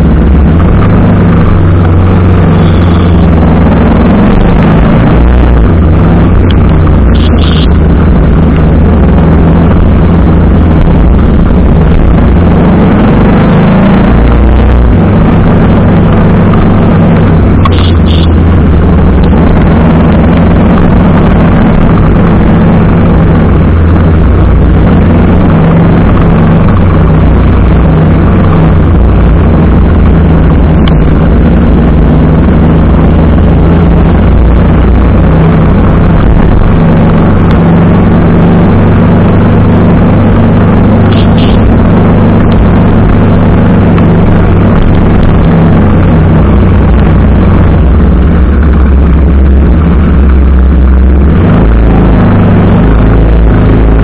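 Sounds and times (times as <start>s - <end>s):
motorcycle engine running: 0.0s - 54.0s
wind rush on microphone: 0.0s - 54.0s
brief high beeps: 2.6s - 3.3s, 17.6s - 18.3s.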